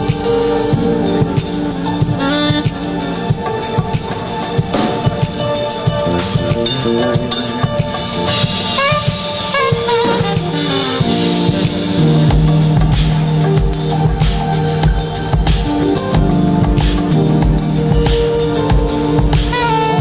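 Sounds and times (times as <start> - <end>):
bending melodic notes: 0.0 - 20.0
drum kit kick and snare: 0.0 - 20.0
live band playing instrumental: 0.0 - 20.0.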